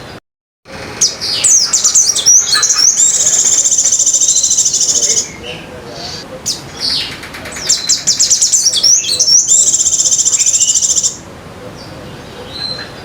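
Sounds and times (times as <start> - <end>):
bird singing chirps and trills: 0.0 - 13.0.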